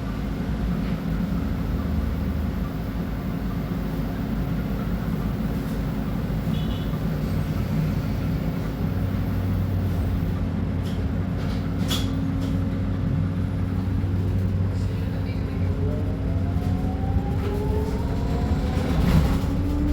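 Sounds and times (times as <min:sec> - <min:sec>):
bus engine humming: 0:00.0 - 0:19.9
engine whine rising: 0:15.4 - 0:19.9.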